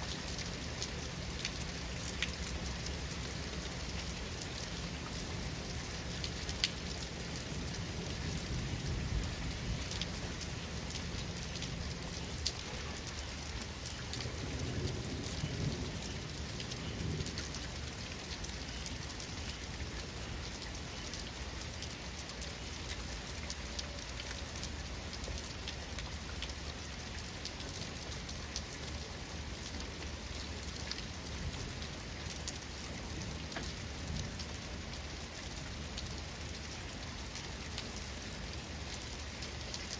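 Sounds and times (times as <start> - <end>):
steady rain falling: 0.0 - 39.9
rolling rumble of thunder: 14.2 - 17.6.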